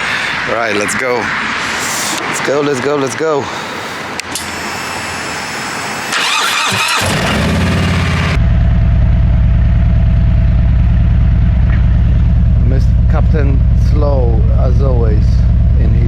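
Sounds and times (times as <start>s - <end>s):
motorcycle electric starter cranking: 4.2s - 8.4s
motorcycle engine idling: 6.2s - 16.0s.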